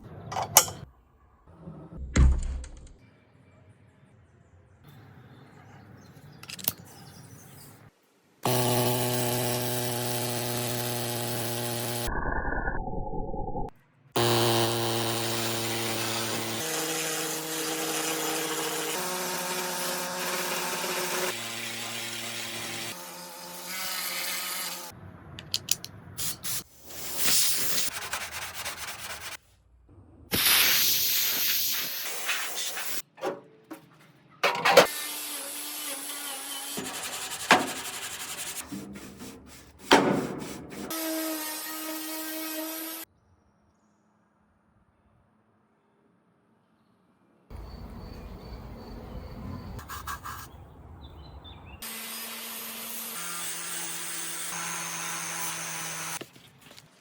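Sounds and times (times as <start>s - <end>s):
power tool motor whine: 8.4s - 12.1s, 14.2s - 24.9s
scraping and rubbing: 36.8s - 40.9s.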